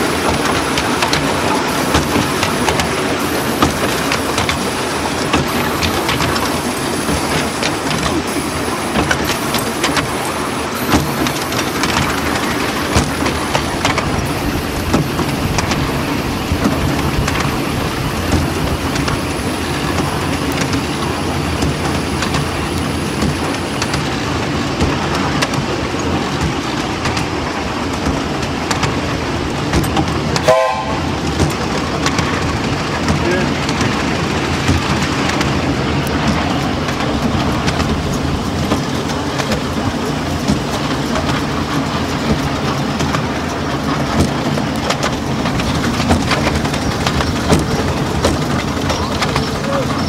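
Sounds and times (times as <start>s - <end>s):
miniature train rumble: 0.0s - 50.0s
wheels clicking over rail joints: 0.0s - 50.0s
train toot: 30.4s - 31.4s.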